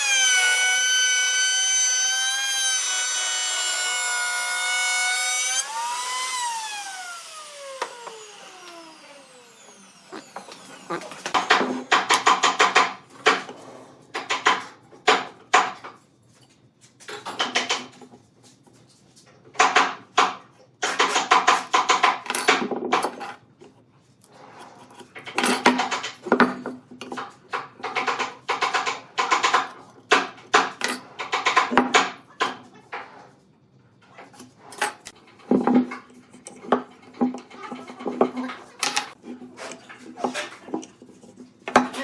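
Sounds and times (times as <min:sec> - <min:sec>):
hand tool scraping wood: 0:05.2 - 0:14.0, 0:35.9 - 0:42.0.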